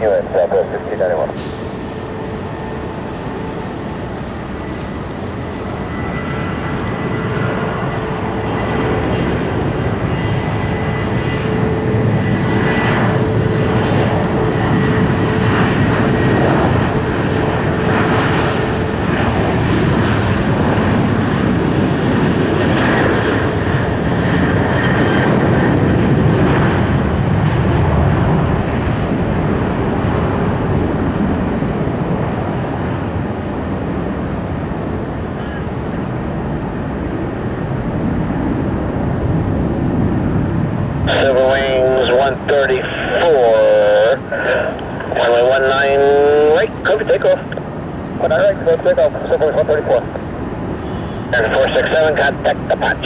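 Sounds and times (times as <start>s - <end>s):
jet engines at takeoff: 0.0s - 53.0s.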